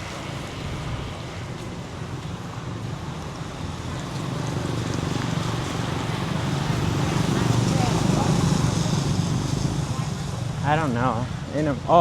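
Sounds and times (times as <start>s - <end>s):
road traffic hum: 0.0s - 12.0s
approaching vehicle engine: 3.2s - 11.8s.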